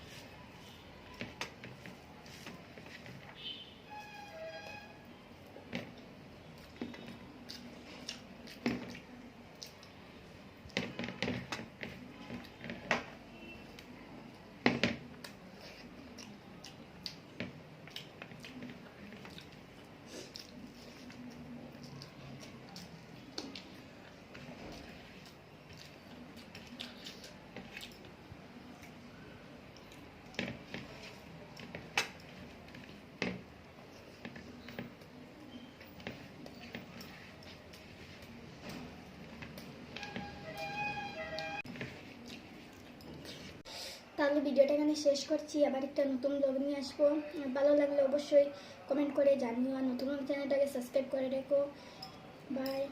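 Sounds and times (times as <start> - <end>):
chewing: 17.8 - 29.0, 41.8 - 43.6.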